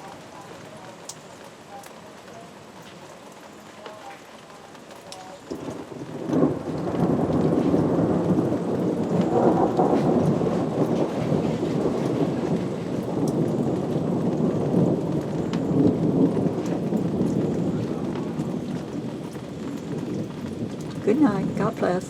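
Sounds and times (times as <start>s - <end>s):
rain falling: 0.0s - 22.0s
rumble of thunder: 5.1s - 22.0s.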